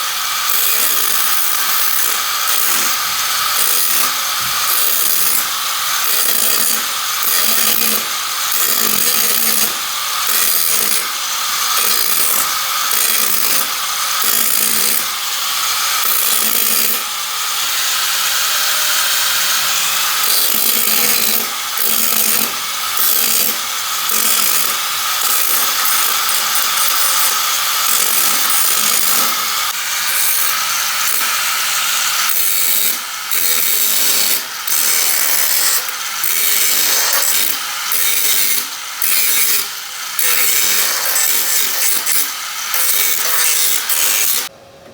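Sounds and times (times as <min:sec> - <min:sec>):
power tool grinding steel: 0:00.0 - 0:44.5.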